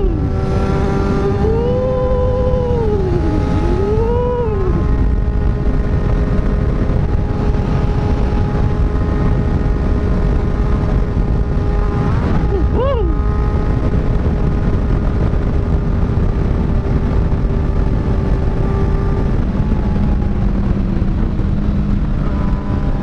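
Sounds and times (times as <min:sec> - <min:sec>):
motorcycle engine revving: 0:00.0 - 0:23.0
motorcycle engines running: 0:00.0 - 0:23.0
wind rush: 0:00.0 - 0:23.0.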